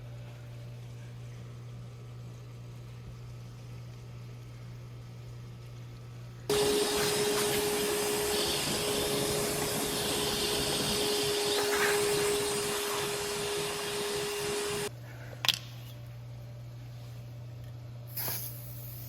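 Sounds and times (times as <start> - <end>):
motor whine: 6.5 - 14.9.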